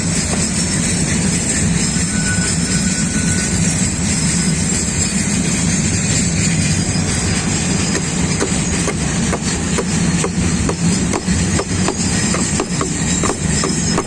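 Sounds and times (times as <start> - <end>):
freight train rumbling past: 0.0 - 14.0
sharp wheel clacks: 3.8 - 14.0.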